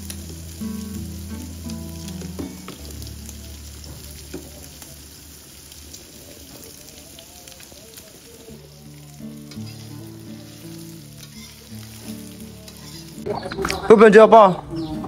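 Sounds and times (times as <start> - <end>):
background music with bass line: 0.0 - 4.9
food sizzling in a pan: 0.0 - 13.5.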